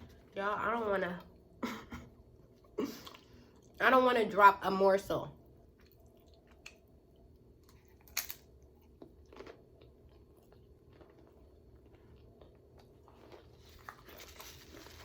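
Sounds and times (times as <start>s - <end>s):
close chewing with mouth clicks: 5.7s - 15.0s.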